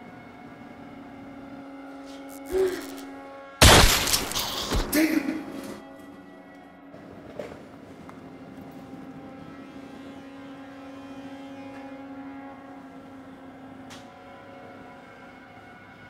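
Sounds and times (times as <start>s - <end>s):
low suspense film score drone: 0.0s - 16.0s
sharp hit: 3.6s - 5.2s.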